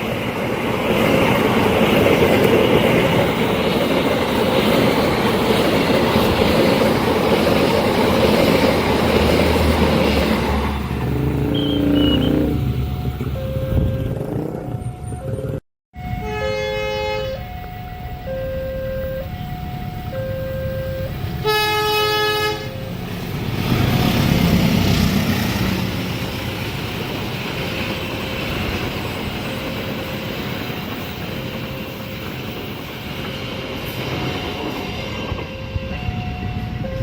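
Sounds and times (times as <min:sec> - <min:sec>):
train passing: 0:00.0 - 0:37.0
two-tone crossing alarm: 0:11.4 - 0:23.1, 0:33.3 - 0:37.0
train horn: 0:11.5 - 0:12.6, 0:16.0 - 0:17.6, 0:21.4 - 0:22.9.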